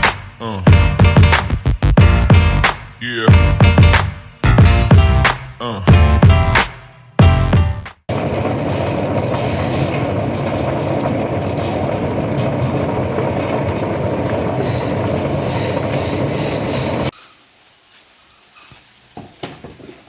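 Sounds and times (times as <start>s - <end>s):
music: 0.0s - 8.0s.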